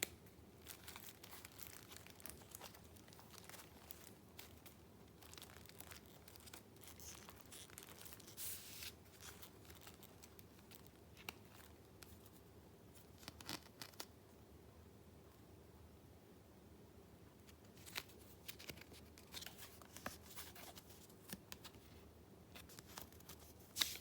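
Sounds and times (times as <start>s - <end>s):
paper rustling and crinkling: 0.6s - 12.4s, 17.5s - 22.0s, 22.6s - 24.0s.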